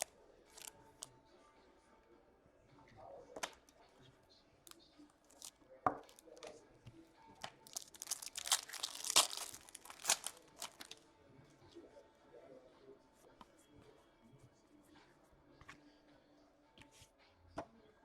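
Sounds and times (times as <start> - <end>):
foil wrapper tearing and crinkling: 0.0 - 0.7, 5.3 - 5.5, 7.6 - 11.0.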